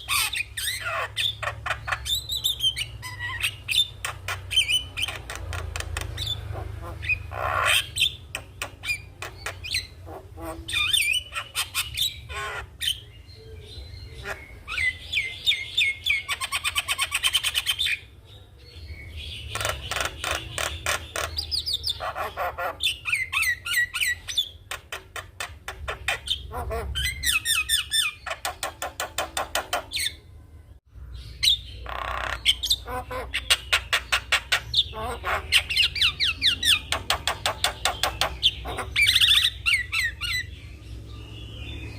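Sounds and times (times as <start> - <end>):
bird chattering and whistling: 0.0 - 18.1, 19.0 - 30.3, 31.2 - 41.9.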